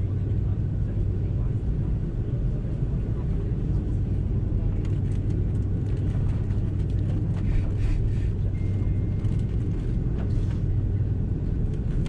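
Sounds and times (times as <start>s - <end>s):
jet engines idling hum: 0.0s - 12.0s
airframe rolling rumble: 4.7s - 12.0s.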